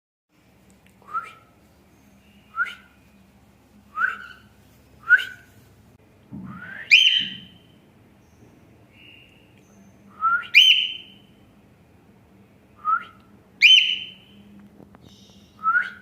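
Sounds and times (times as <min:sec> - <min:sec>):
cockatiel rising whistle: 0:06.5 - 0:07.5
cockatiel chirps: 0:06.9 - 0:07.6, 0:10.5 - 0:11.2, 0:13.6 - 0:14.2.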